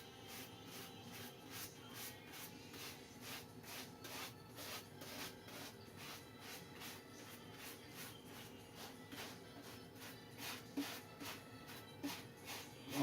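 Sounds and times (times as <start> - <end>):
brush swishing glue on paper: 0.3 - 13.0.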